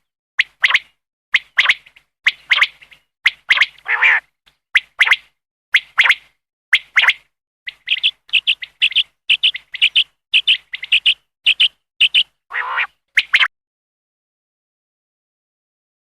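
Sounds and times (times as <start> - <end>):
quail calling: 3.6 - 4.3, 7.0 - 13.5.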